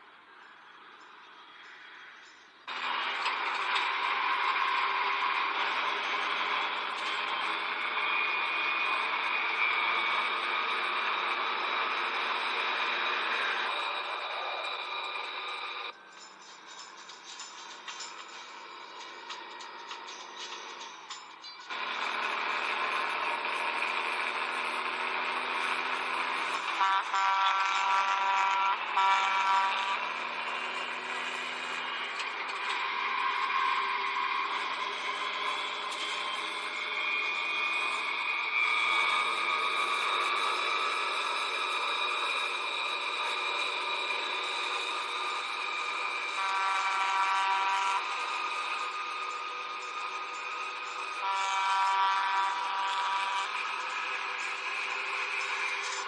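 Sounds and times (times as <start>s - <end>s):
faint high whine: 0.0s - 56.0s
highway engines droning: 0.0s - 56.0s
vehicles driving at speed: 2.7s - 16.0s, 21.7s - 46.4s
vehicle horn blaring: 26.7s - 30.3s, 46.3s - 48.3s, 51.2s - 53.7s.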